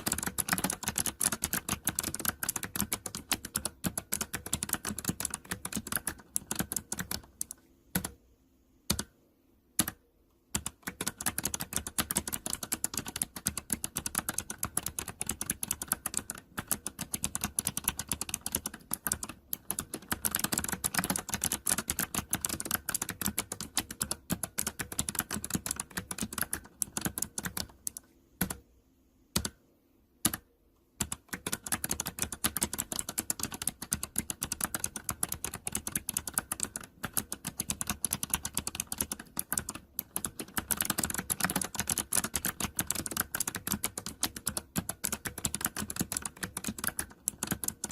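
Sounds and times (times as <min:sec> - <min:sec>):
mechanical keyboard typing: 0:00.0 - 0:08.2, 0:08.9 - 0:09.2, 0:09.8 - 0:28.6, 0:29.4 - 0:29.6, 0:30.2 - 0:47.9.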